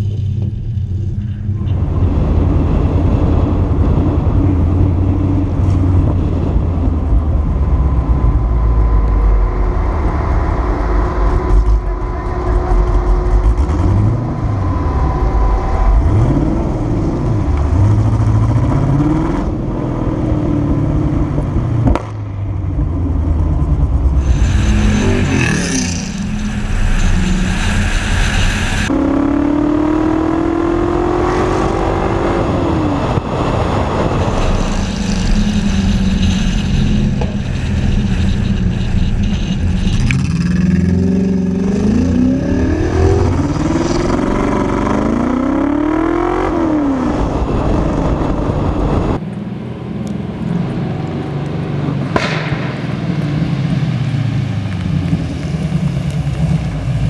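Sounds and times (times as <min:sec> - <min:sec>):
race car engine accelerating: 0:01.6 - 0:49.2.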